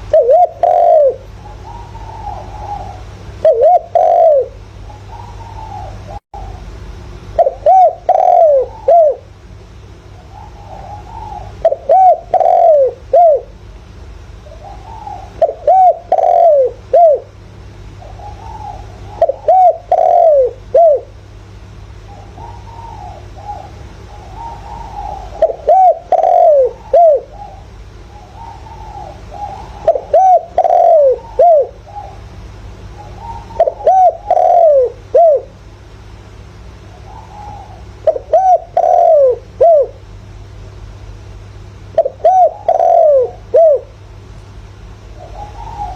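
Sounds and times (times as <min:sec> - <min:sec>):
dove cooing: 0:00.0 - 0:09.3, 0:10.1 - 0:13.7, 0:14.4 - 0:35.6, 0:36.8 - 0:40.2, 0:41.9 - 0:44.0, 0:45.0 - 0:45.9
steady low hum: 0:00.0 - 0:45.9.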